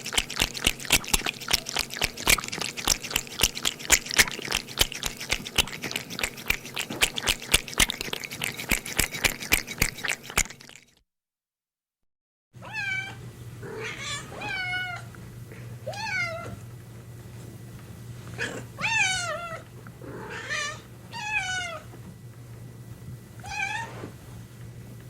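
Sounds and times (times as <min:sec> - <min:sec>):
steady low hum: 0:00.0 - 0:10.7
cat meowing: 0:12.6 - 0:15.1, 0:18.5 - 0:19.6.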